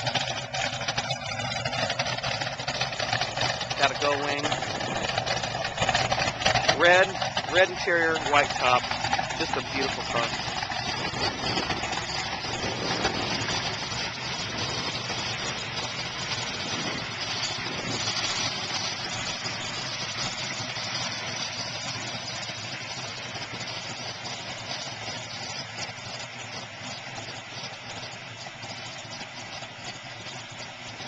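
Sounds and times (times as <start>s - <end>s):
car engine through exhaust: 0.0s - 31.0s
steady rushing noise: 1.6s - 21.6s.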